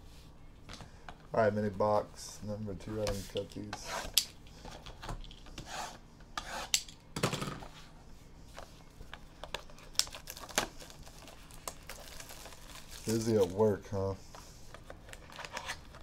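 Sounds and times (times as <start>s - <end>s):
cards rubbing and scraping: 14.3s - 16.0s.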